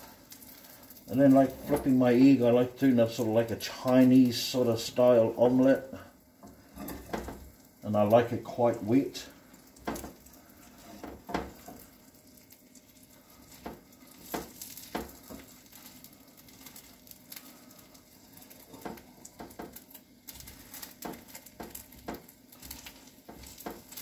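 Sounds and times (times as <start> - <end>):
omelette sizzling in a frying pan: 0.0 - 24.0
spatula tapping and scraping pan: 6.4 - 7.5, 9.7 - 12.5, 13.5 - 17.0, 18.4 - 24.0.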